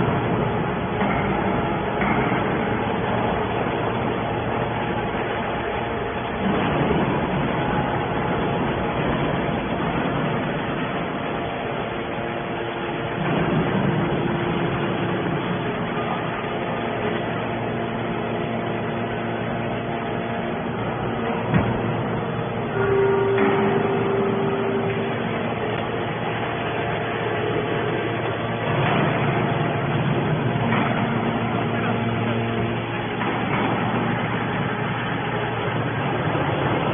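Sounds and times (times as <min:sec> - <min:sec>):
faint hum: 0:00.0 - 0:36.9
scrap metal baler running: 0:00.0 - 0:36.9.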